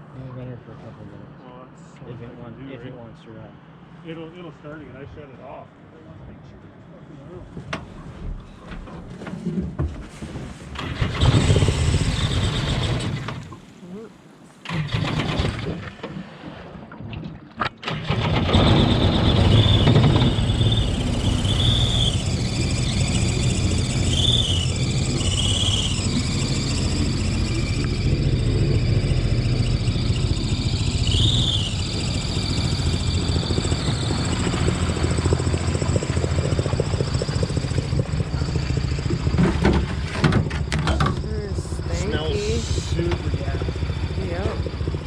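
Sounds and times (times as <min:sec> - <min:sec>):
boat engine starting and running: 0:07.9 - 0:13.8, 0:14.6 - 0:45.0
short high squeals: 0:10.8 - 0:13.5, 0:17.9 - 0:39.3.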